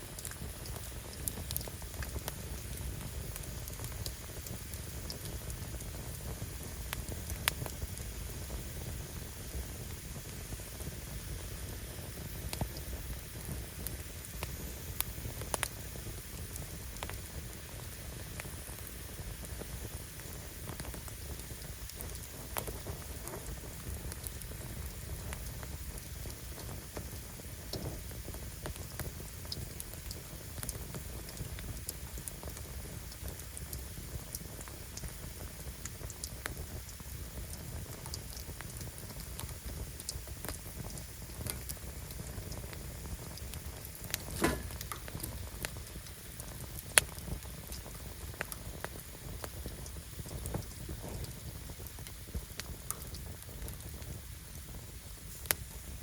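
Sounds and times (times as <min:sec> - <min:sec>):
firewood crackling: 0:00.0 - 0:56.0
loud pop from fire: 0:09.8 - 0:26.0, 0:26.6 - 0:35.0, 0:40.1 - 0:56.0.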